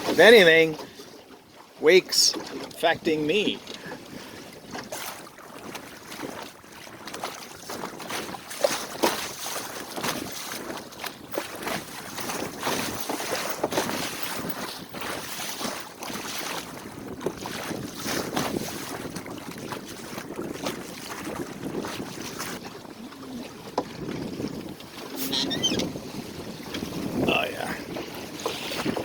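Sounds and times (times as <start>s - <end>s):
water slapping boat hull: 0.0s - 29.0s
wind buffeting microphone: 10.0s - 29.0s.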